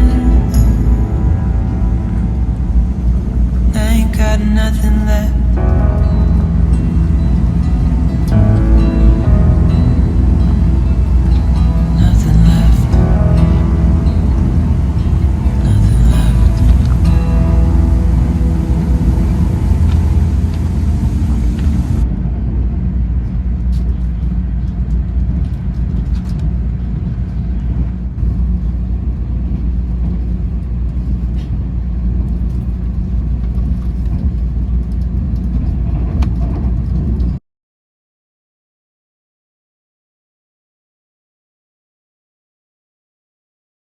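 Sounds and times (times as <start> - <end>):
moving vehicle rumble: 0.0 - 4.3, 5.4 - 37.4
song playing: 0.0 - 22.0.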